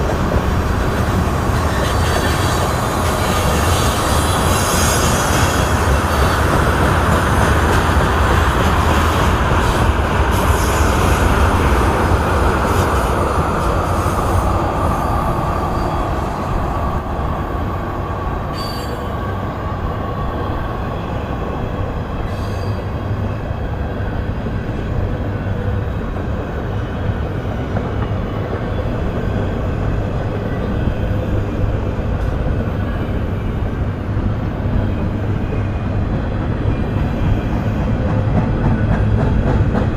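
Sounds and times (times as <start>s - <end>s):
freight train rolling past: 0.0s - 39.9s.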